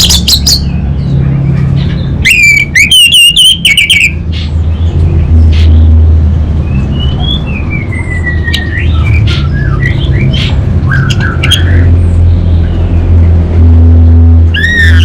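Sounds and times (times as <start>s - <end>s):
low hum: 4.1s - 15.0s.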